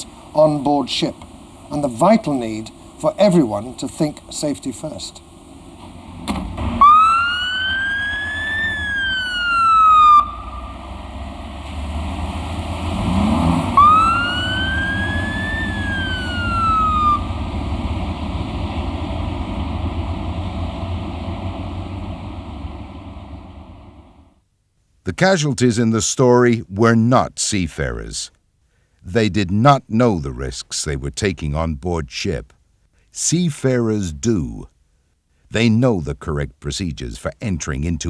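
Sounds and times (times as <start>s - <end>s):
low vehicle rumble: 0.0s - 24.4s
emergency siren wailing: 6.6s - 11.6s, 13.0s - 23.7s.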